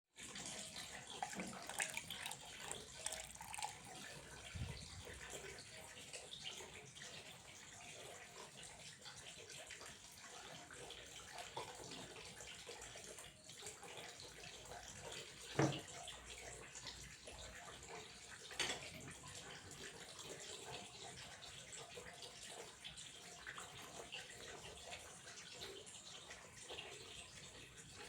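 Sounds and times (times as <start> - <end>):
water trickling: 0.2 - 28.0.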